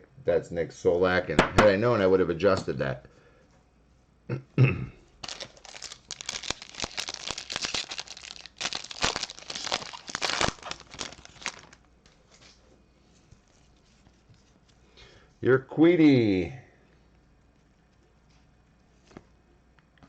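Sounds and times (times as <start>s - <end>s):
wrapper tearing and crinkling: 5.2s - 11.9s.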